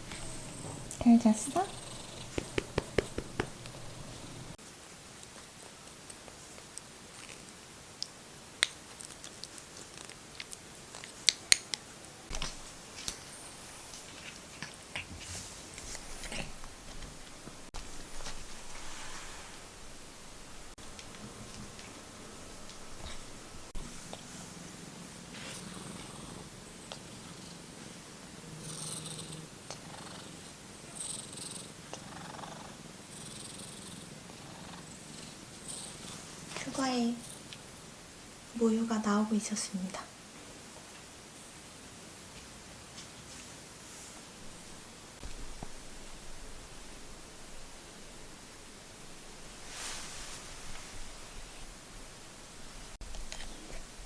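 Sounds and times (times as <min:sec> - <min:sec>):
cat purring: 0:00.0 - 0:04.6, 0:12.5 - 0:27.7, 0:28.5 - 0:36.4
soft breathy rustles: 0:00.0 - 0:04.6, 0:12.5 - 0:26.2, 0:49.1 - 0:51.9.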